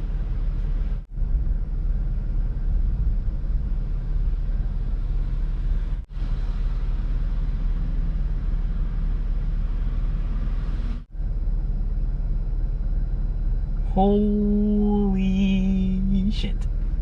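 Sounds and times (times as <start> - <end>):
low rumble inside a car: 0.0 - 17.0.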